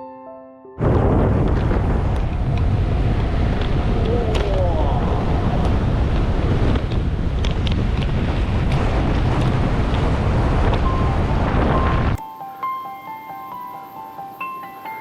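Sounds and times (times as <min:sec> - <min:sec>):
wind buffeting microphone: 0:00.8 - 0:12.2.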